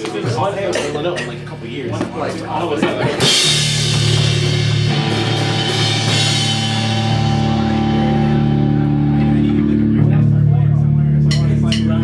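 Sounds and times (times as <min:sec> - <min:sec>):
cymbal crash: 0:03.3 - 0:08.7
electric guitar chords ringing: 0:03.6 - 0:12.0.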